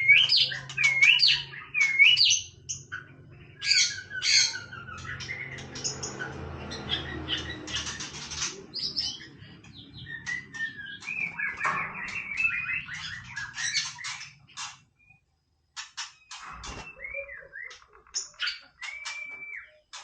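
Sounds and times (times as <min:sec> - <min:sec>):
bird singing whistled notes: 0:00.0 - 0:02.9, 0:09.0 - 0:14.2, 0:16.2 - 0:20.0.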